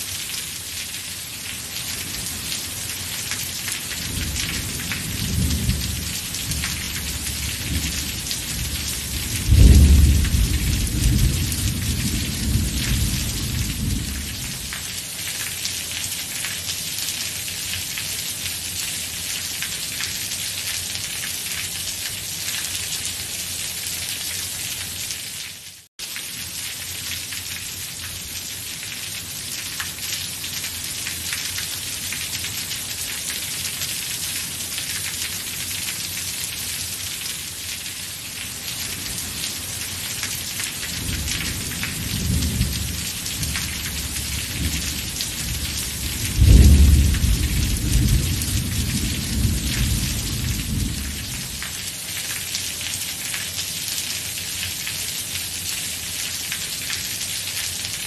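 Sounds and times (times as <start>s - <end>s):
steady rain falling: 0.0s - 58.0s
thunder rumbling and cracking: 4.0s - 14.6s, 41.0s - 51.6s.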